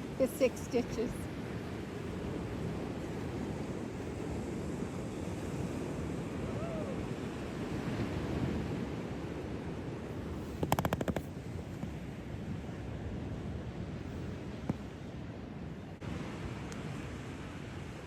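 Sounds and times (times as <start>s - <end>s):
rapid clicking rattle: 10.5s - 11.3s.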